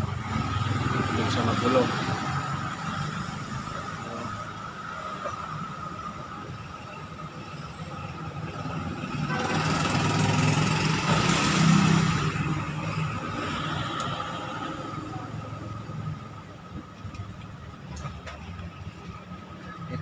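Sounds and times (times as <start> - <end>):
vehicle engine passing: 9.3 - 16.4.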